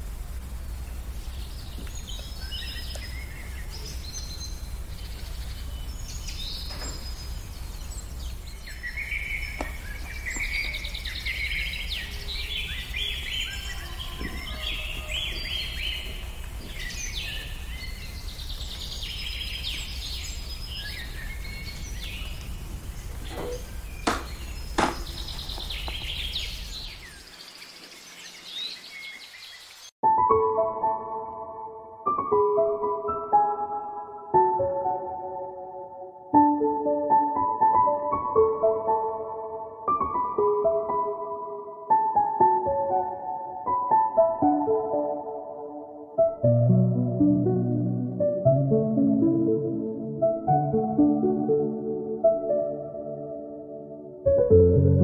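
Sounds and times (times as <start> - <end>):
small birds chirping: 0.2 - 29.9
sharp knocks: 23.3 - 26.1.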